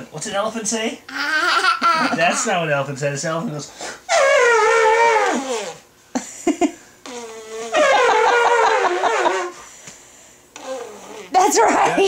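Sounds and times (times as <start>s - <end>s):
toddler imitating elephant trumpet: 4.1s - 5.8s, 7.1s - 9.6s.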